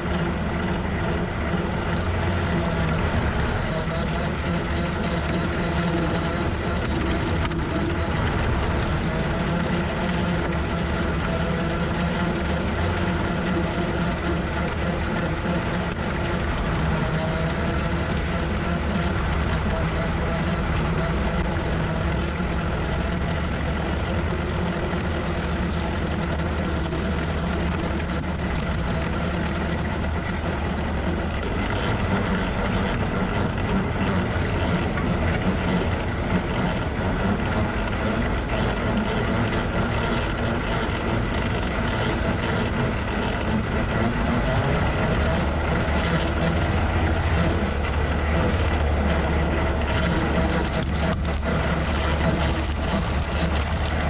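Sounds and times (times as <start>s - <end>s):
rotary cutter mowing: 0.0s - 31.6s, 45.9s - 54.0s
tractor engine running: 0.0s - 54.0s.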